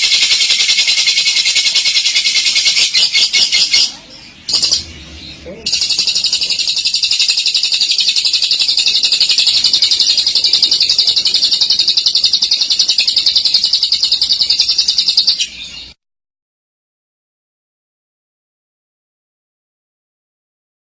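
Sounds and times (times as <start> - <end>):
lovebird chattering trill: 0.0 - 16.0.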